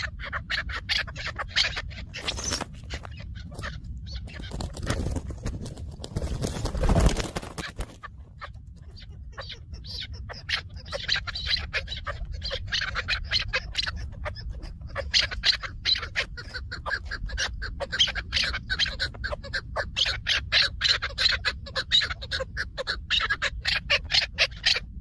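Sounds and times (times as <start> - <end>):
partridge calling: 0.0 - 25.0
steady low rumble: 0.0 - 25.0.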